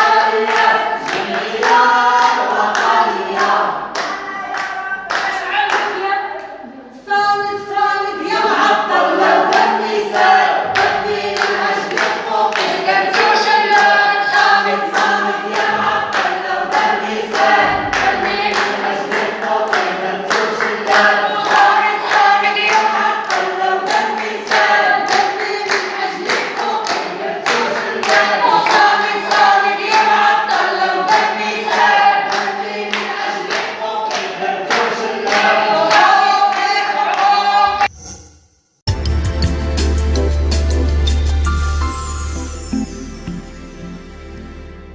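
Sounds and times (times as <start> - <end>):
rhythmic hand-clapping: 0.0 - 6.1, 8.9 - 37.6
crowd chanting in unison: 0.0 - 37.9.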